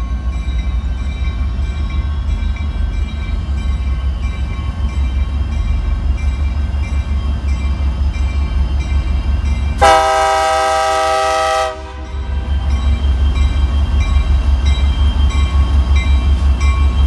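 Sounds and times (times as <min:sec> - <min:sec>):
train rumble: 0:00.0 - 0:17.0
locomotive air horn: 0:09.8 - 0:12.2.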